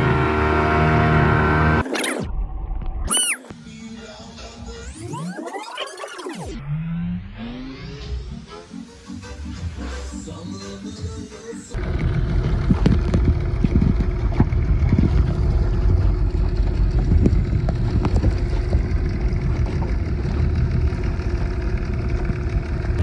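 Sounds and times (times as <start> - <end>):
motorboat engine running: 11.8 - 23.0.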